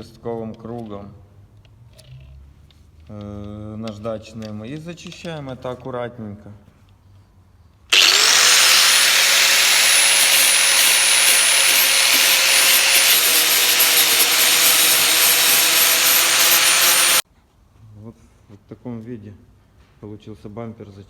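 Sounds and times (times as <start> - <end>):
angle grinder grinding plastic: 7.9 - 17.2.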